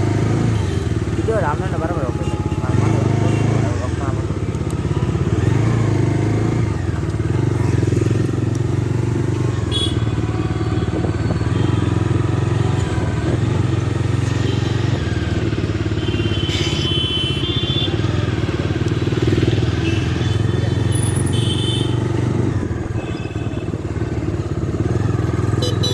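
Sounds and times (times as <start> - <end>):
motorcycle engine running: 0.0 - 25.9
high horn-like tone: 22.7 - 24.3, 25.5 - 25.9.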